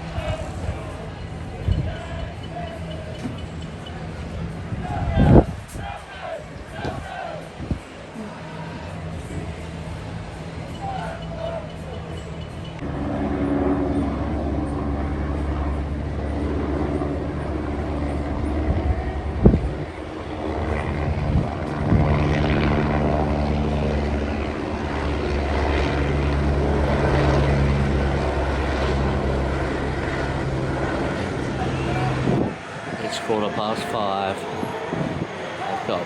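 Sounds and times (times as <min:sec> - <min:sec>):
low engine drone: 0:12.3 - 0:36.0.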